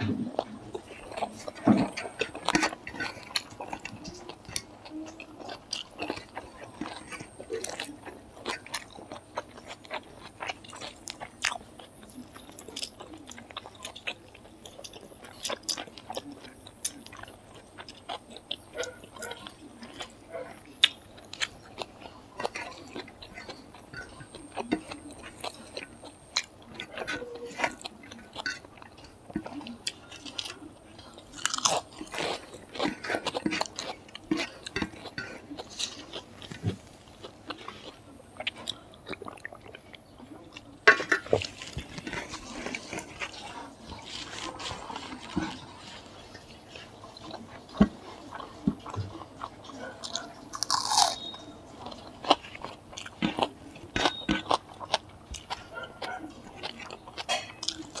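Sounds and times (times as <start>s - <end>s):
crunchy chewing: 0.0s - 58.0s.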